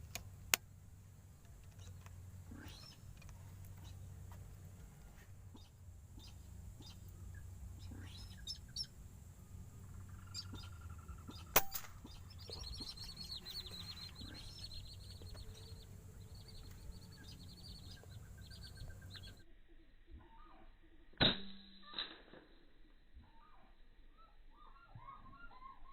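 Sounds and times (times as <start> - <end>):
small birds chirping: 0.0 - 21.1, 23.1 - 25.9
sharp crack: 11.3 - 13.4, 21.2 - 22.6.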